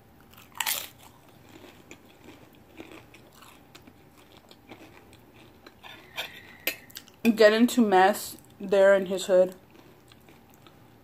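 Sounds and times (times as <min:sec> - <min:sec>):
crunchy chewing: 0:00.2 - 0:07.2, 0:09.5 - 0:11.0
tortilla chip crunch: 0:00.2 - 0:07.3.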